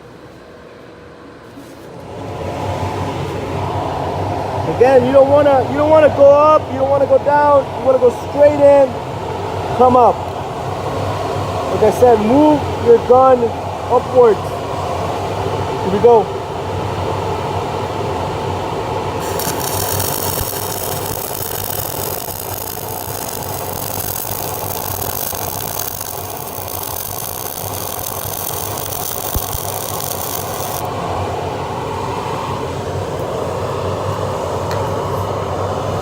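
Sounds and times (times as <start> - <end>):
fume extractor droning: 2.0 - 36.0
welding arc crackling hiss: 19.2 - 30.9.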